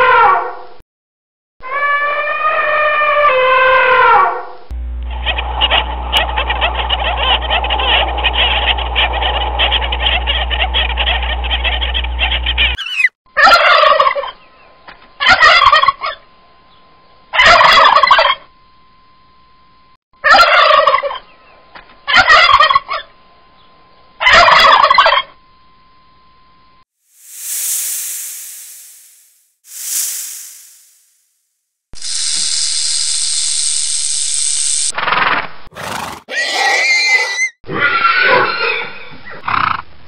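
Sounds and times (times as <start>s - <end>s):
dense steady noise with hum: 4.6s - 12.8s, 14.3s - 20.0s, 22.6s - 26.8s
bird's rapid pulsing call: 5.3s - 13.1s.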